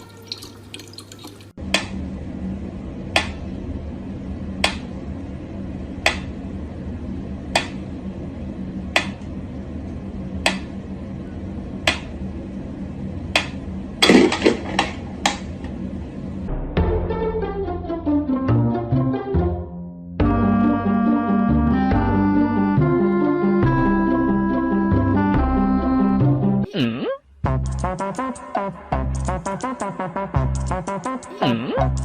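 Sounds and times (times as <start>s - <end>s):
steady low hum: 1.3s - 18.0s.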